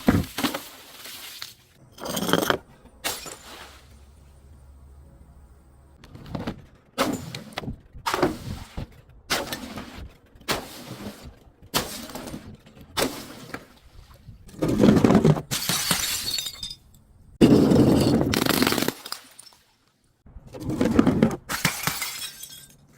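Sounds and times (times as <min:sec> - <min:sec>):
glass crushing and shattering: 0:01.9 - 0:03.7, 0:15.4 - 0:19.7, 0:21.5 - 0:22.9.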